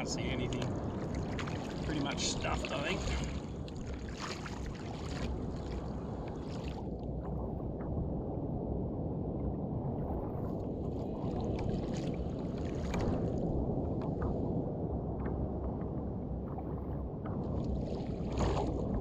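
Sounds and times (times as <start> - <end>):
light water splashes: 0.0 - 7.0, 10.8 - 14.3, 17.5 - 19.0
water sloshing around kayak: 0.0 - 7.0, 10.5 - 13.6, 17.6 - 19.0
steady low rumble: 0.0 - 19.0.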